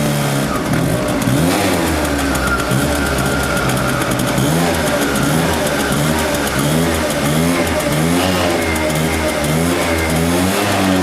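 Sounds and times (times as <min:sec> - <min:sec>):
moped engine revving: 0:00.0 - 0:11.0.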